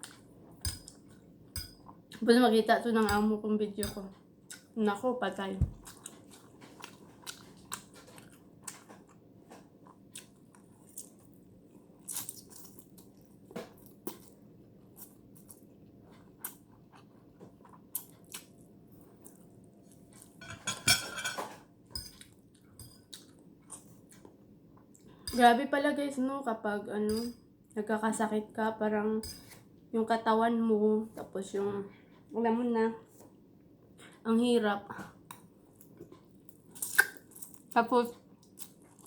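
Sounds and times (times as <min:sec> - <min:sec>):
chewing noodles mouth clicks: 0:36.8 - 0:37.6.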